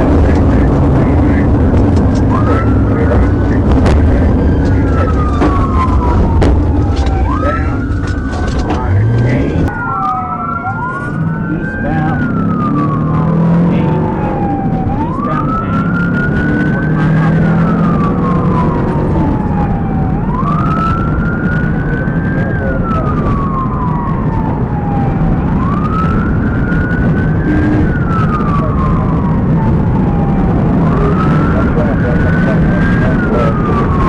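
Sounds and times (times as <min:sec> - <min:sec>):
car engine rumble and road noise: 0:00.0 - 0:34.0
police siren wailing: 0:00.0 - 0:34.0.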